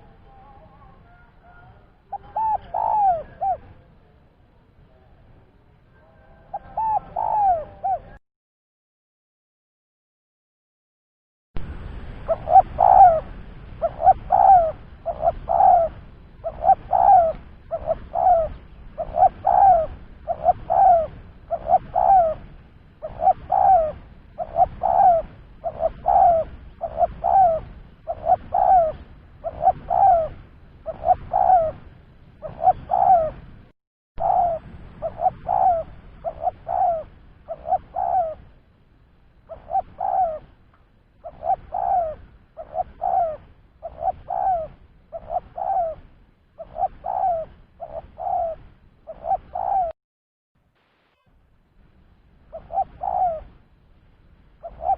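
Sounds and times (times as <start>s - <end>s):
dove cooing: 0.0s - 3.9s, 6.0s - 8.2s, 12.2s - 33.4s, 34.2s - 38.6s, 39.4s - 40.6s, 41.2s - 50.0s, 52.5s - 53.6s, 54.6s - 54.9s.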